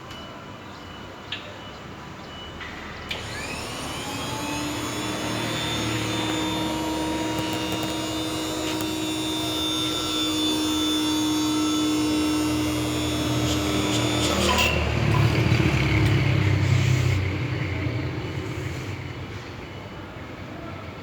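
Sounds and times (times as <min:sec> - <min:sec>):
electric motor whine: 0:03.1 - 0:16.4
motor switch click: 0:04.2 - 0:10.6.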